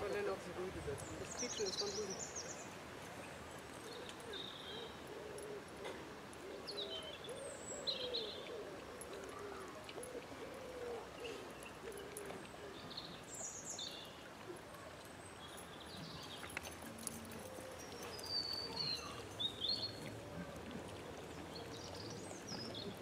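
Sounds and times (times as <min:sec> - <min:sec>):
birds chirping: 0:00.0 - 0:05.6.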